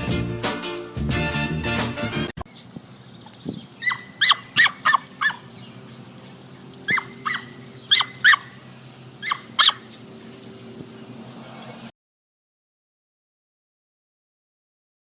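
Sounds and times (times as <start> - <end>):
small dog yipping: 3.8 - 5.4, 6.9 - 8.6, 9.2 - 9.9.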